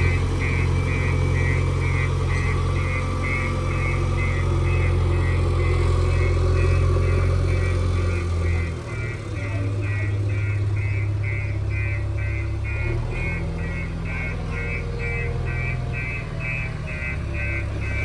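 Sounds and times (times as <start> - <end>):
diesel engine running: 0.0 - 18.0
reversing alarm beeping: 0.0 - 18.0.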